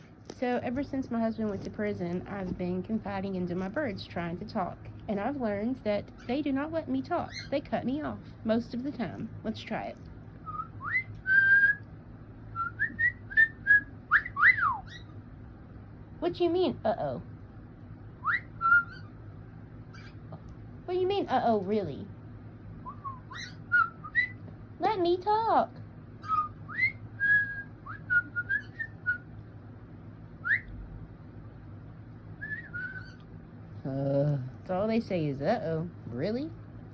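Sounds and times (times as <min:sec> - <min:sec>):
cockatiel whistling: 0:10.4 - 0:11.8, 0:12.6 - 0:15.1, 0:18.2 - 0:19.1, 0:22.8 - 0:24.4, 0:26.2 - 0:29.3, 0:30.4 - 0:30.7, 0:32.4 - 0:33.3.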